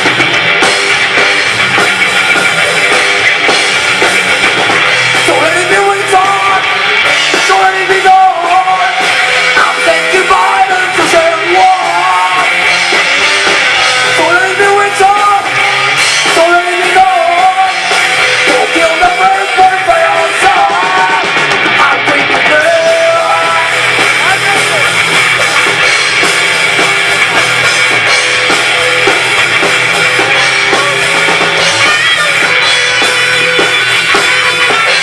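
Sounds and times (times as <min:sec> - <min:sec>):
rock band playing live: 0:00.0 - 0:35.0
person singing: 0:05.2 - 0:13.3, 0:14.0 - 0:25.8, 0:29.9 - 0:35.0.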